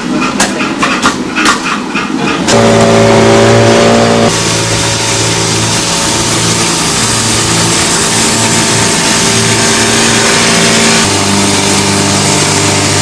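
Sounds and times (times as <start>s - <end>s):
engine running: 2.3s - 13.0s
loud rushing noise: 2.5s - 13.0s.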